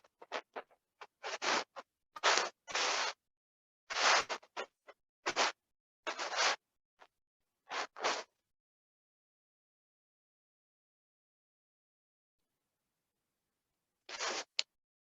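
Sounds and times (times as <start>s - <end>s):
scratching and rubbing strokes: 0.0s - 3.2s, 3.9s - 4.7s, 5.3s - 6.6s, 7.7s - 8.3s, 14.1s - 14.6s.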